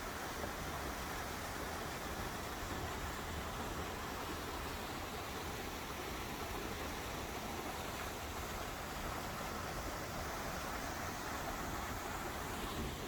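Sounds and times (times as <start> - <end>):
stream water flowing over rocks: 0.0 - 13.0.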